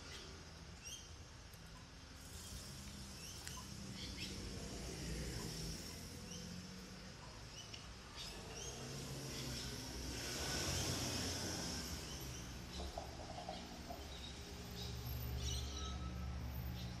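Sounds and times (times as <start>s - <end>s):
birds chirping: 1.8s - 4.6s.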